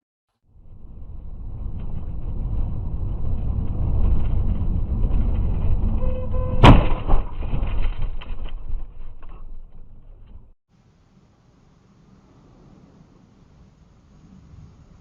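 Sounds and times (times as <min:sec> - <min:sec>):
car road and engine rumble: 0:00.5 - 0:07.6
vehicle collision bang: 0:06.1 - 0:09.0.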